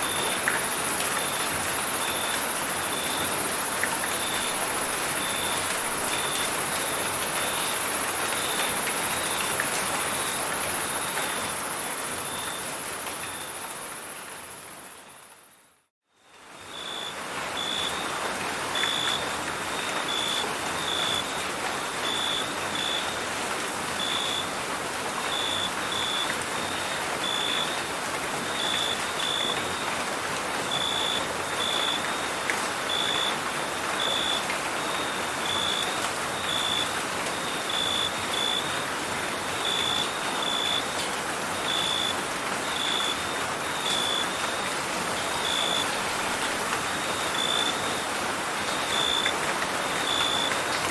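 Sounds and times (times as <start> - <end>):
steady rain falling: 0.0 - 50.9
crickets chirping: 47.0 - 48.1, 48.7 - 50.6.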